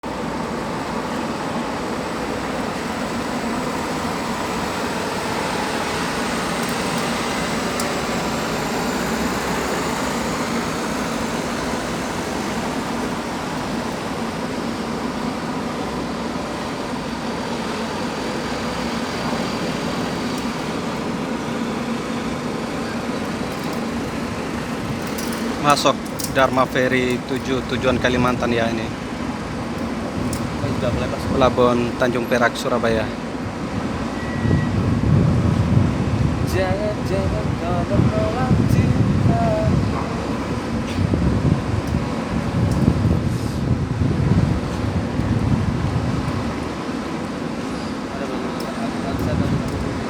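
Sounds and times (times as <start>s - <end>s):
faint high whine: 0.0s - 35.4s
diesel truck engines droning: 0.0s - 50.0s.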